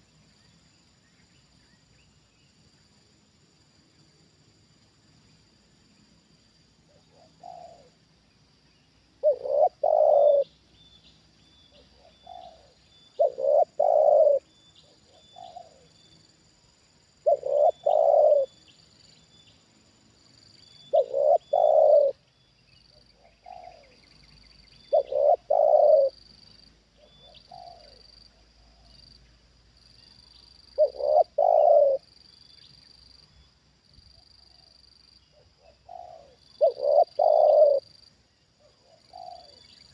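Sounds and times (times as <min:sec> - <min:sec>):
dove cooing: 0:06.9 - 0:08.0, 0:09.2 - 0:10.5, 0:11.9 - 0:16.0, 0:17.2 - 0:18.6, 0:20.8 - 0:22.2, 0:23.2 - 0:24.1, 0:24.8 - 0:26.2, 0:27.0 - 0:29.0, 0:30.8 - 0:32.1, 0:34.5 - 0:38.0, 0:38.6 - 0:39.9.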